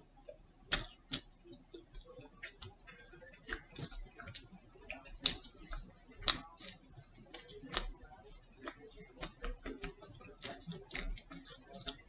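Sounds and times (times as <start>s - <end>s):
person chewing: 0.7s - 12.0s.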